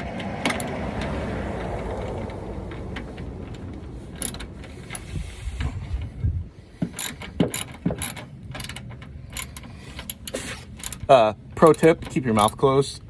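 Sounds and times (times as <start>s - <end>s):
socket ratchet wrench clicking: 4.2s - 5.1s, 7.0s - 11.1s.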